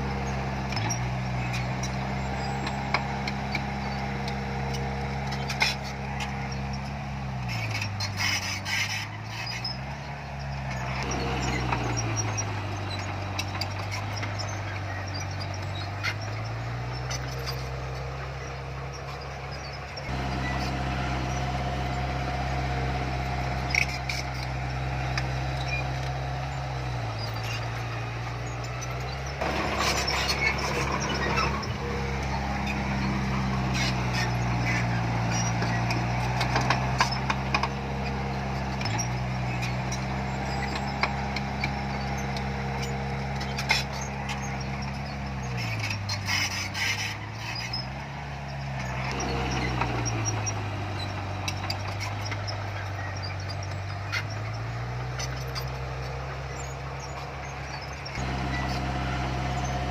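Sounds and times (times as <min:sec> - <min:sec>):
heavy diesel engine running: 0:00.0 - 0:59.9
metallic clanks: 0:27.1 - 0:47.9.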